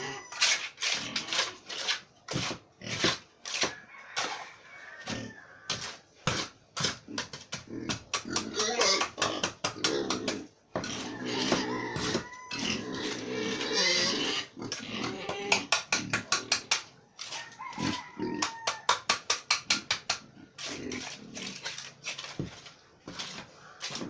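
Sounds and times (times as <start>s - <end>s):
pigs grunting: 6.9s - 16.6s, 17.7s - 18.4s, 20.3s - 21.8s.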